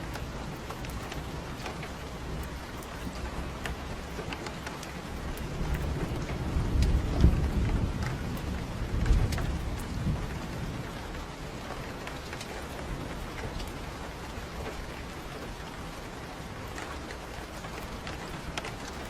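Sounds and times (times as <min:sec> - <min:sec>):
light ticks: 0:00.0 - 0:15.8, 0:16.7 - 0:19.0
steady rain falling: 0:00.0 - 0:19.0
thunder rolling: 0:05.0 - 0:11.3.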